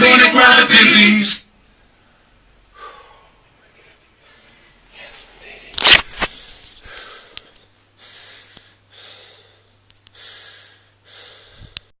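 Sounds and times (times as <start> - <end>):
person breathing hard: 2.7 - 5.3, 6.3 - 11.9.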